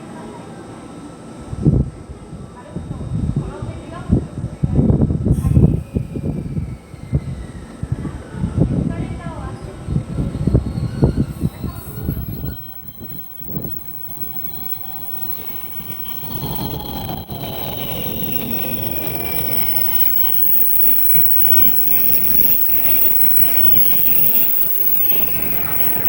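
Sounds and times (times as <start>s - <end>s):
train whine: 5.3s - 26.0s
train running noise: 9.8s - 26.0s.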